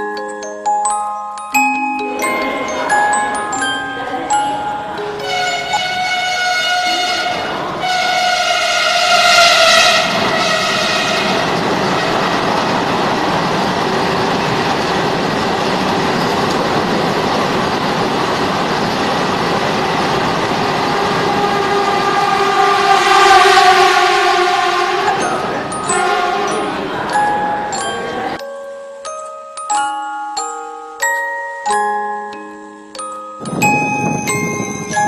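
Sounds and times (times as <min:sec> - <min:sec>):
train coaches rumbling on rails: 0:02.0 - 0:28.4, 0:33.4 - 0:35.0
train horn: 0:05.2 - 0:12.5, 0:20.6 - 0:28.4.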